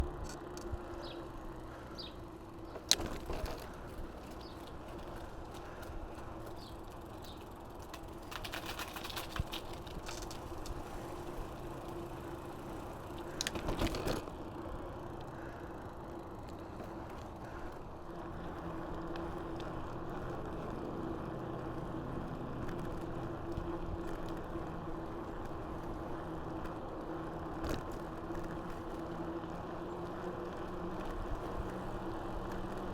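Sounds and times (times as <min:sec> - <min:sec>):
bike rattling and clicking: 0:00.0 - 0:32.9
bike tyre noise: 0:00.0 - 0:32.9.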